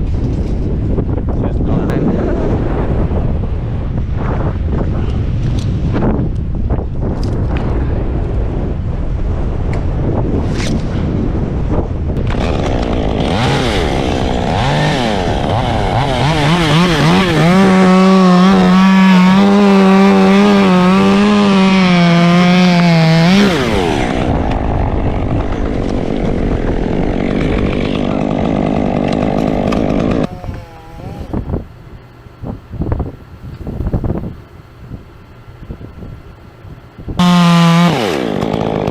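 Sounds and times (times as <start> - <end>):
chainsaw revving: 12.2 - 31.4, 37.2 - 38.9.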